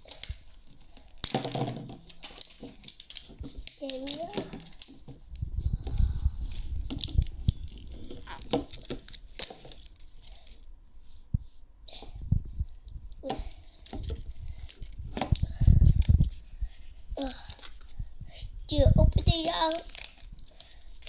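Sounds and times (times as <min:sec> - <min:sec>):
packaging being torn and crinkled: 0:00.0 - 0:05.5, 0:06.4 - 0:10.6, 0:19.2 - 0:21.0.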